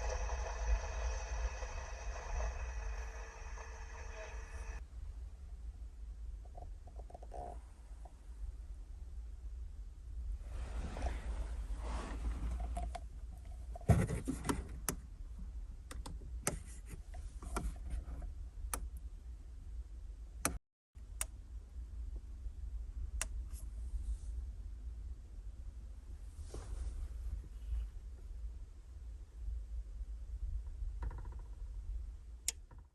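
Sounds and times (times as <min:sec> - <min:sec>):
steady low rumble: 0:07.6 - 0:13.9, 0:14.7 - 0:31.0.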